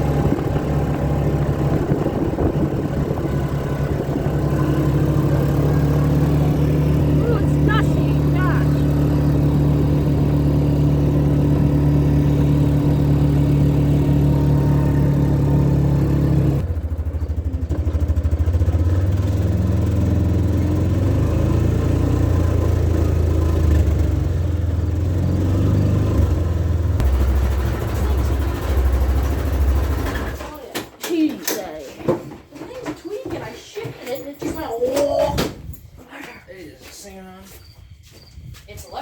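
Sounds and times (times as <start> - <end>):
vehicle engine running: 0.0 - 30.6.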